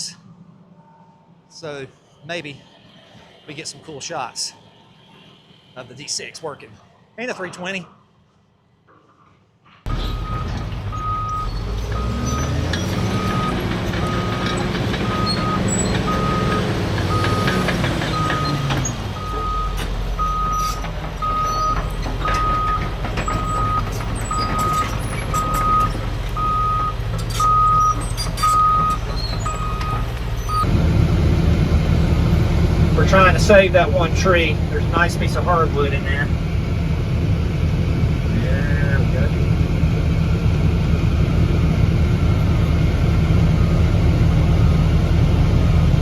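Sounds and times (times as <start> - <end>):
backup alarm beeping: 9.9 - 12.2, 13.1 - 30.7
diesel heavy equipment running: 9.9 - 46.0.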